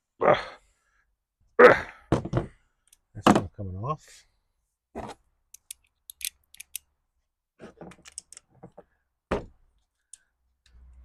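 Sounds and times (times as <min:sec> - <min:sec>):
hand tools clicking on metal parts: 0:05.5 - 0:06.8.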